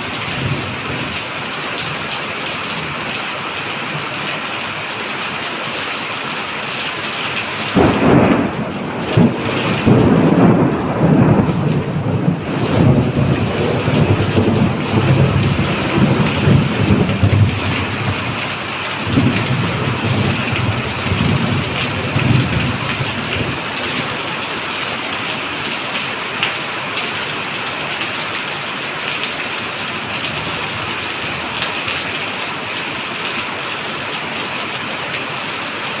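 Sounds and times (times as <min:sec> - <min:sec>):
heavy rain falling: 0:00.0 - 0:36.0
thunder rumbling: 0:07.8 - 0:18.4, 0:19.0 - 0:23.6.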